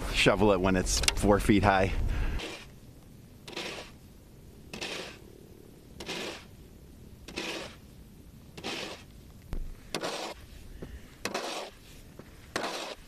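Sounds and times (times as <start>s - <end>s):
snow shovel scraping: 2.2s - 2.7s, 3.5s - 4.0s, 4.7s - 5.2s, 6.0s - 6.5s, 7.3s - 7.8s, 8.6s - 9.1s, 9.8s - 13.0s.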